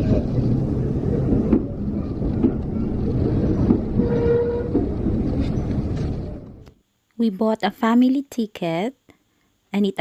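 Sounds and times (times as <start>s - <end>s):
train wheels rumbling: 0.0s - 6.7s
knocks and clanks: 1.4s - 6.2s.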